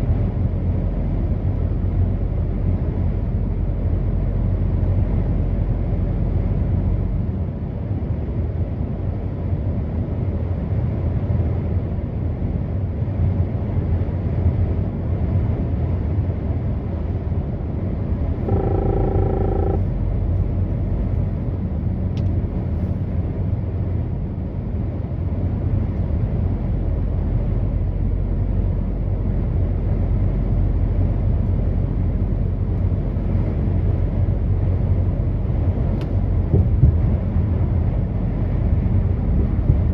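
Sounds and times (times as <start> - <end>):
truck engine rumble: 16.4 - 39.9
brief pitched tone: 18.4 - 20.0.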